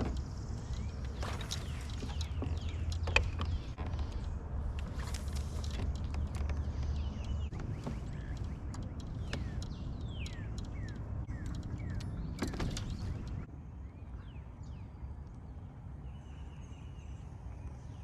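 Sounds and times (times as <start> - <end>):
sharp clicks: 0.0 - 13.5.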